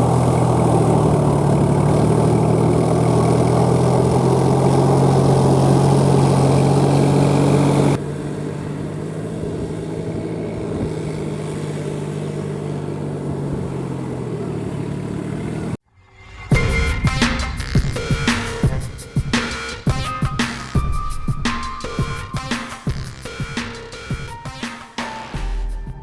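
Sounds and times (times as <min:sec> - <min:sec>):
tractor diesel engine running: 0:00.0 - 0:15.8.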